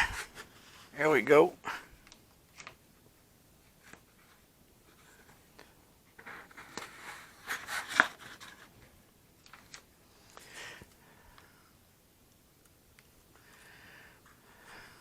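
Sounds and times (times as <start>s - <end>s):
scratchy rustling and scraping: 6.2s - 8.8s.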